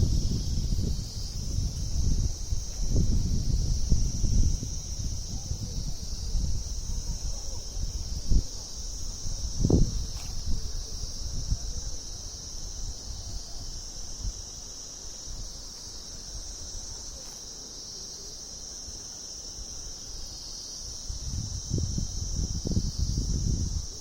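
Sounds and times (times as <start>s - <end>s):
low rumble on microphone: 0.0s - 14.4s
insects chirring: 0.0s - 24.0s.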